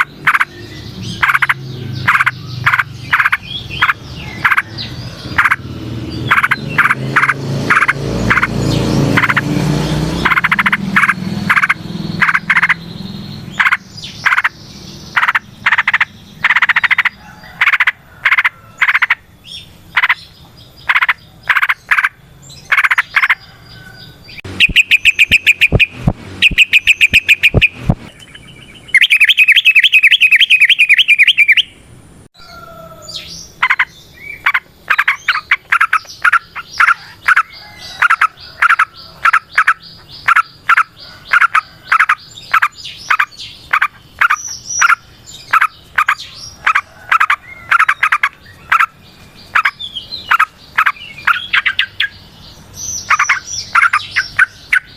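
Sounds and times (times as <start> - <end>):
bird rapid trills: 0.0 - 19.2, 19.9 - 23.4, 24.4 - 31.7, 33.6 - 52.2, 52.8 - 54.9
bulbul singing chattering notes: 0.0 - 19.2, 24.4 - 31.8.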